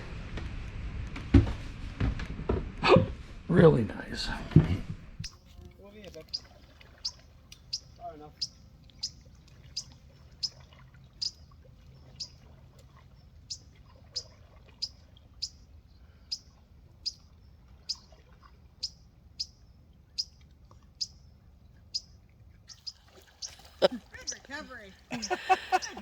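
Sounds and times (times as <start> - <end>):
bird chirping: 5.3 - 10.6, 11.2 - 12.4, 13.1 - 15.6, 16.3 - 18.1, 18.8 - 20.4, 21.0 - 26.0.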